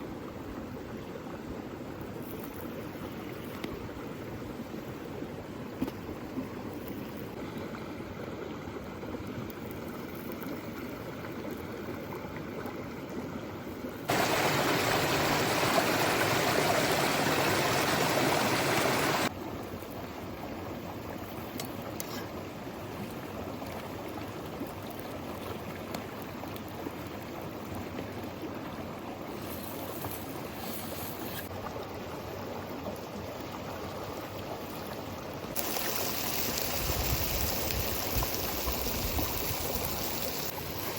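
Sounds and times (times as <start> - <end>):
flowing stream rushing: 14.1 - 19.4.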